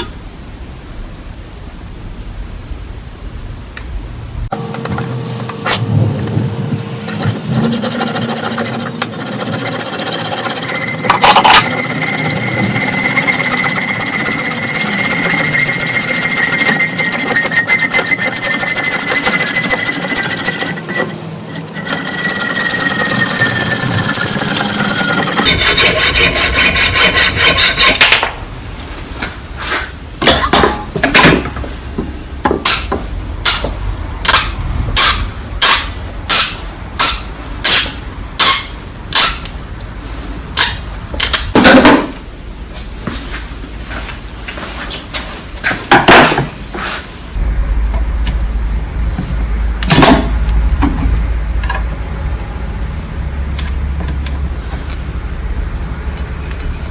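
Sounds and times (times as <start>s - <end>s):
power tool grinding: 6.8s - 28.2s.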